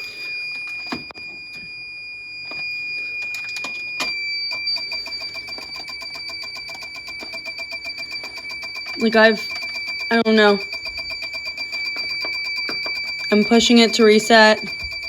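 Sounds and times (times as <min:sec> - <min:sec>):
high-pitched alarm tone: 0:00.0 - 0:15.0
rapid alarm beeping: 0:00.0 - 0:15.0.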